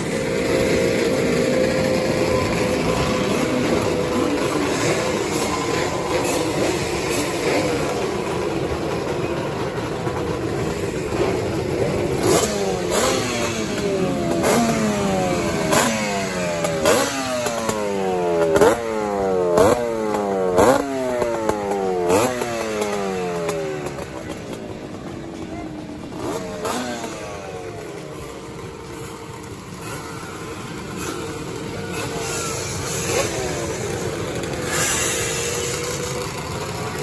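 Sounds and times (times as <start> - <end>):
two-stroke motorcycle engines running: 0.0 - 37.0.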